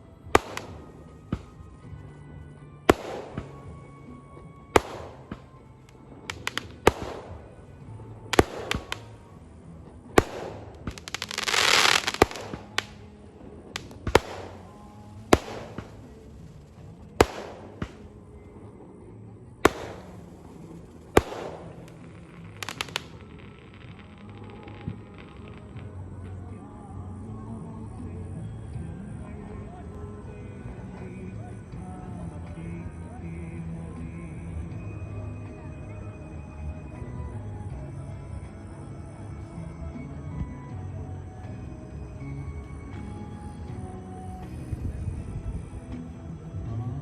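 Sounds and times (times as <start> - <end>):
firecrackers banging: 0.0 - 26.5.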